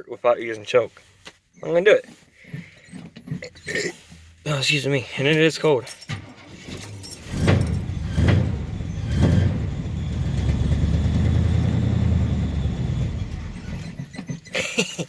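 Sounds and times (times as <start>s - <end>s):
car engine starting and idling: 6.0s - 14.3s.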